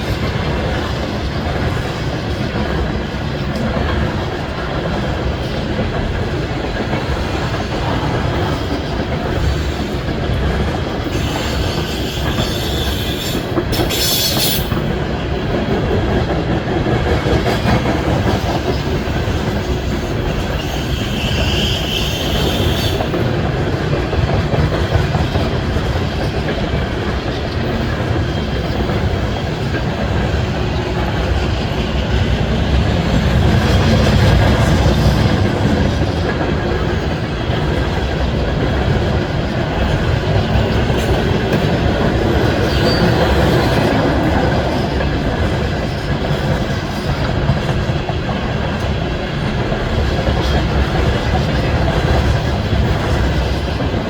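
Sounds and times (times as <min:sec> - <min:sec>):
train rumbling past: 0:00.0 - 0:54.0
wheels clacking on rails: 0:00.0 - 0:54.0
train hiss: 0:10.9 - 0:14.9.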